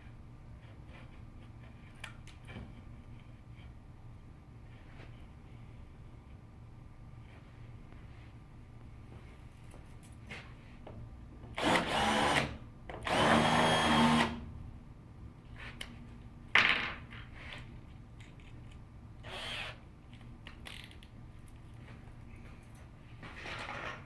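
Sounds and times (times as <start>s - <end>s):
power drill whining: 11.6s - 14.4s, 19.2s - 19.8s.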